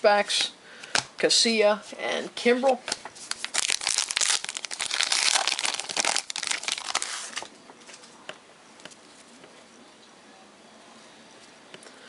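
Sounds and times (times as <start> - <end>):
wrapper crinkling and tearing: 3.2 - 8.0.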